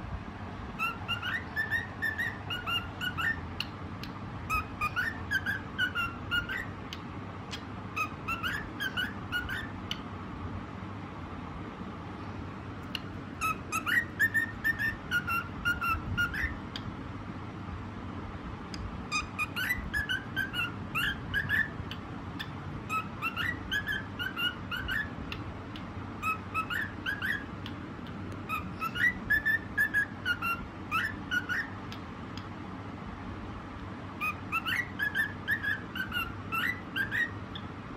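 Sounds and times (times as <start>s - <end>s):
cockatiel whistling a tune: 0.8s - 3.7s, 4.5s - 6.8s, 7.5s - 10.0s, 12.9s - 16.6s, 19.1s - 25.4s, 26.2s - 27.5s, 28.5s - 32.0s, 34.2s - 37.7s.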